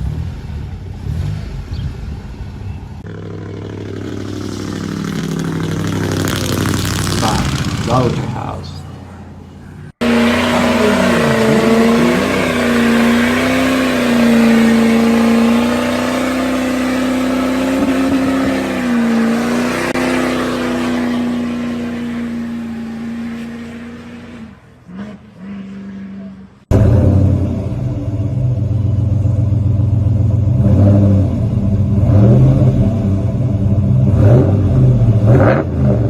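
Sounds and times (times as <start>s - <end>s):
pickup truck engine through loud exhaust: 0.0s - 36.0s.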